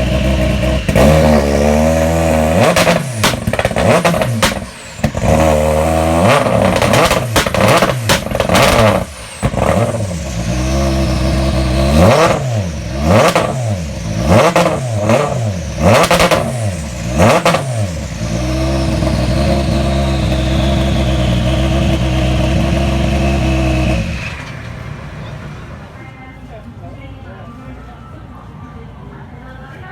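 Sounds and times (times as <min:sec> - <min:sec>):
rally car engine revving: 0:00.0 - 0:25.8
anti-lag bangs: 0:02.7 - 0:05.4.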